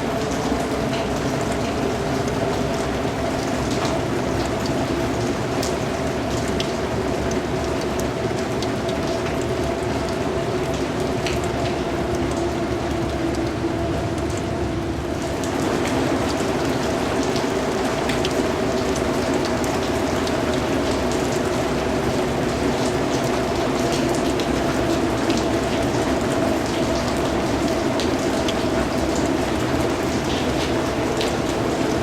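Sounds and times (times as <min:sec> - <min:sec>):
rain falling: 0:00.0 - 0:32.0.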